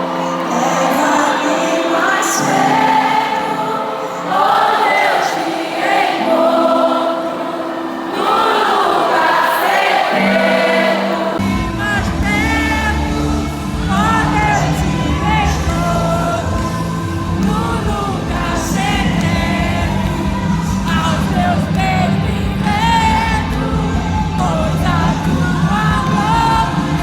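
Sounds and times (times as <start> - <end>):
many voices singing together: 0.0 - 27.0
sustained keyboard chords: 0.0 - 27.0
low bass notes: 11.4 - 27.0.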